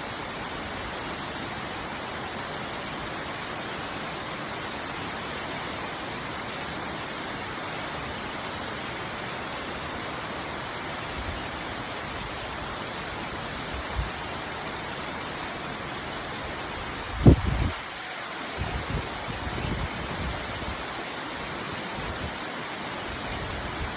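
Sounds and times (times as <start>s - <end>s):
heavy rain falling: 0.0s - 23.9s.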